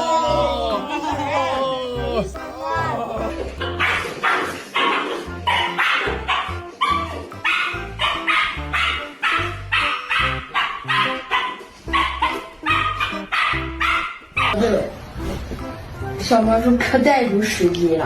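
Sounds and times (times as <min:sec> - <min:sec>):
bass line: 0:00.0 - 0:04.0
dog barks in time with music: 0:00.1 - 0:14.6.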